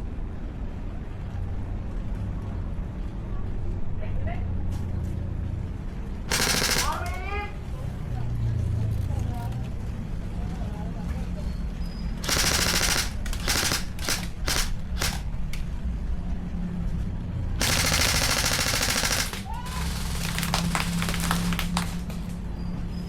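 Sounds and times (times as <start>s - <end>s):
airsoft guns firing bursts: 6.3s - 7.5s, 12.2s - 15.4s, 17.6s - 22.1s.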